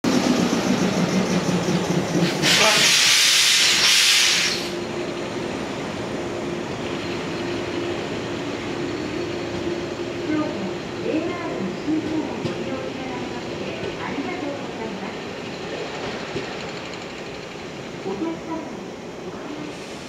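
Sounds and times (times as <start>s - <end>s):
train humming: 0.0s - 20.0s
air brakes hissing: 2.2s - 4.8s, 19.7s - 20.0s.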